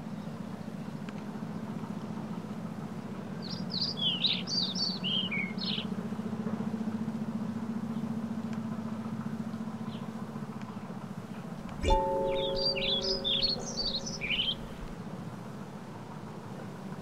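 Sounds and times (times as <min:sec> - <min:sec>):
steady low hum: 0:11.2 - 0:15.0
songbird chirping: 0:11.8 - 0:15.0.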